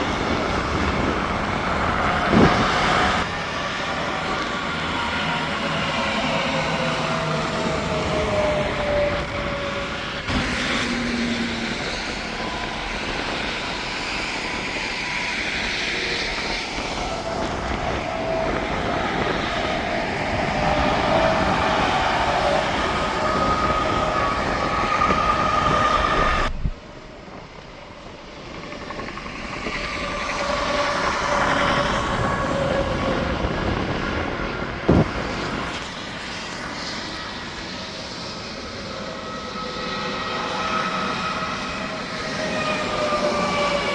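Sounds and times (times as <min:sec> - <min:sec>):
highway traffic passing: 0:00.0 - 0:14.4.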